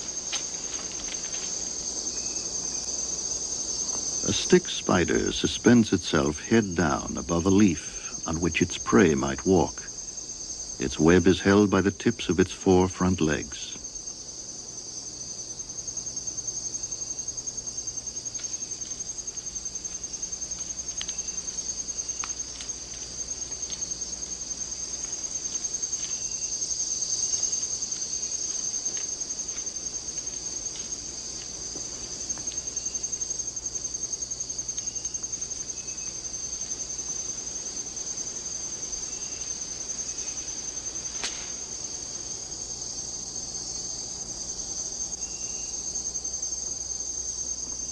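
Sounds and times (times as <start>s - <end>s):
faint ticks: 0.0s - 3.0s, 18.2s - 41.9s
insects trilling: 0.0s - 47.9s.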